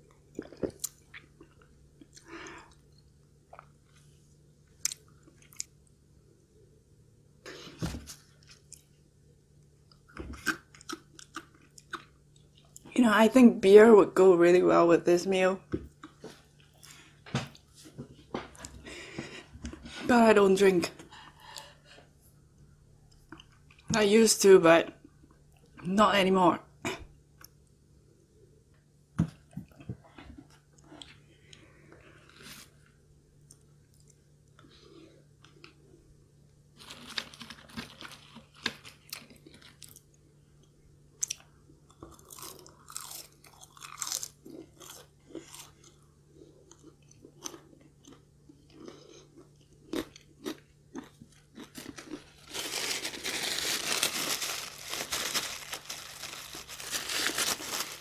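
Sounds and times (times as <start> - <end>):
crunching fried food: 9.8 - 12.8, 36.7 - 46.0, 46.6 - 58.0
paper napkin rustling: 52.4 - 58.0.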